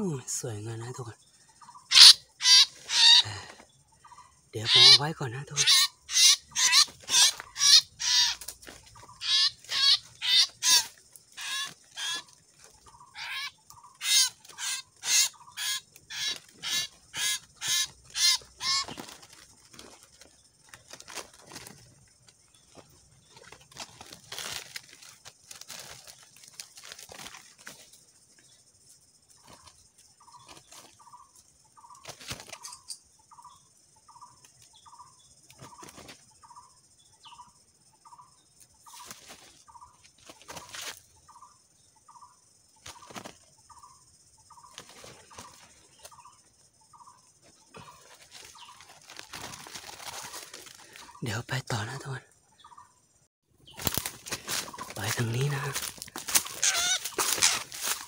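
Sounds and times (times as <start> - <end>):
high insect buzz: 0.0 - 4.0, 4.6 - 58.0
bird giving harsh short calls: 1.9 - 3.5, 4.7 - 5.0, 5.6 - 8.4, 9.2 - 12.3, 13.1 - 19.0, 54.7 - 58.0.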